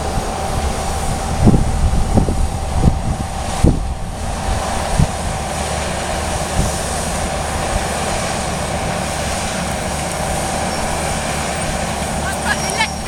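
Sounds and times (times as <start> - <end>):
broad rushing noise: 0.0 - 13.0
engine drone: 0.0 - 13.0.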